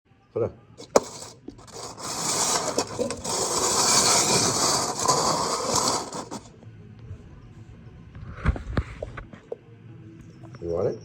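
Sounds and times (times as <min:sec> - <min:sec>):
cups scraping across a surface: 0:00.8 - 0:06.5.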